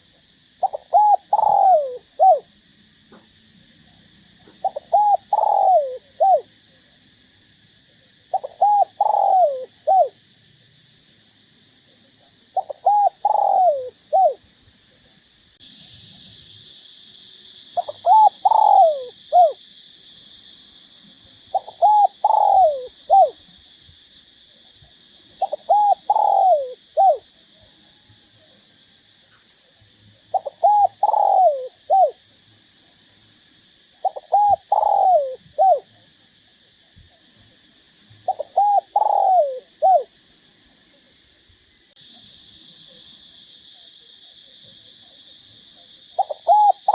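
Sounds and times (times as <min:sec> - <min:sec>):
steady high hiss: 0:00.0 - 0:46.9
dove cooing: 0:00.6 - 0:02.5, 0:04.4 - 0:06.5, 0:08.3 - 0:10.2, 0:12.6 - 0:14.4, 0:17.8 - 0:19.6, 0:21.5 - 0:23.4, 0:25.4 - 0:27.3, 0:30.3 - 0:32.2, 0:34.0 - 0:35.9, 0:38.3 - 0:40.1, 0:46.2 - 0:46.9.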